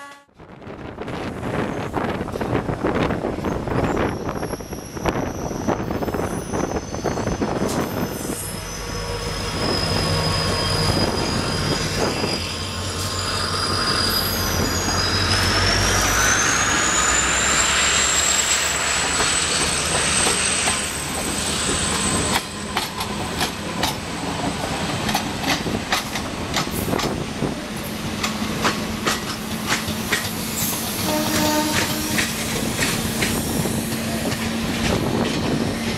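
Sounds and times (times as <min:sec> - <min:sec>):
high squeal: 0:03.4 - 0:22.7
wheels clicking over rail joints: 0:22.2 - 0:27.2, 0:28.1 - 0:35.9.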